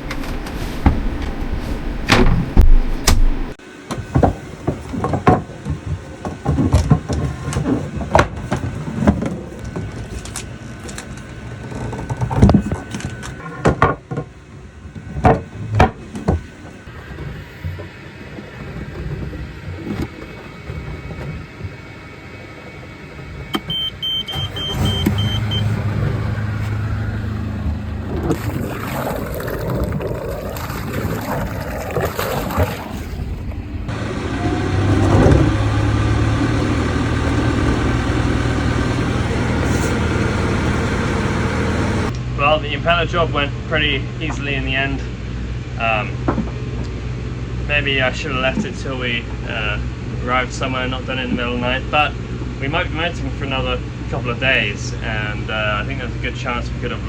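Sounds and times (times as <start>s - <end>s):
boat engine running: 0.0s - 3.6s, 15.0s - 42.7s
short beeping alarm: 23.6s - 25.8s.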